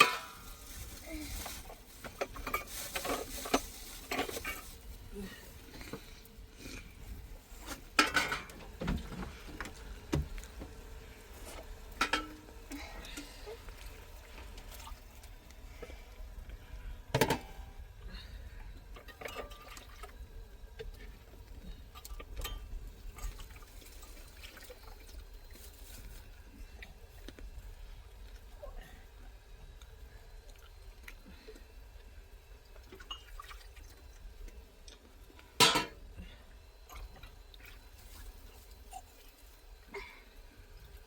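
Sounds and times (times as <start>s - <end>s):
pots and dishes clinking: 0.0s - 0.6s, 7.9s - 8.8s, 11.9s - 13.4s, 17.2s - 17.7s, 19.0s - 19.8s, 35.6s - 36.0s
liquid sloshing: 22.0s - 26.2s.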